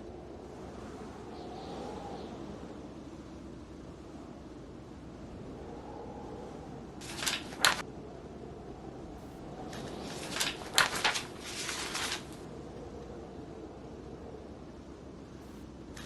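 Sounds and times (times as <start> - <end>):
blizzard wind: 0.0 - 16.0
book pages turning: 7.0 - 7.8, 9.7 - 12.4.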